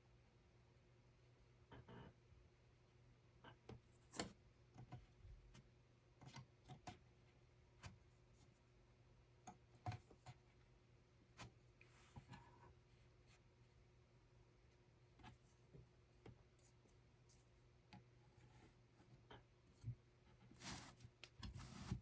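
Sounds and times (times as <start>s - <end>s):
small clicks and taps: 9.4s - 10.4s.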